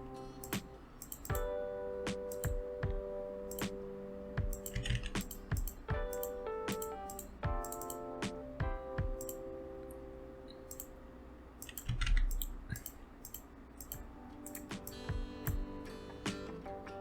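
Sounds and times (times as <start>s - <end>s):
soft background music: 0.0s - 12.5s, 13.8s - 17.0s
computer mouse clicks: 0.4s - 1.5s, 4.5s - 8.0s, 10.7s - 10.9s, 11.6s - 14.7s
keyboard taps: 0.4s - 3.8s, 4.4s - 10.0s.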